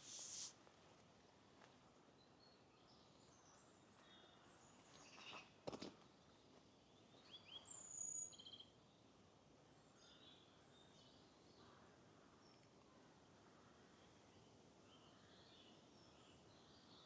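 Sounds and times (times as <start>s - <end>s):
faint steady hiss: 0.0s - 1.8s.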